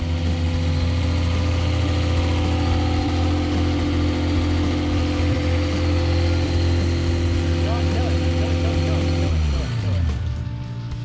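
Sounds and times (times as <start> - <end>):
car engine fast idling: 0.0 - 10.8.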